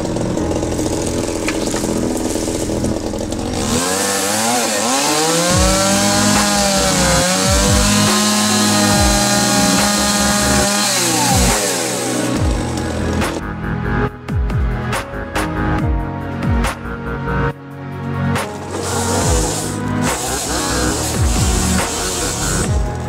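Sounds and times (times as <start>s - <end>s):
small petrol engine revving: 0.0s - 13.4s, 18.4s - 23.0s.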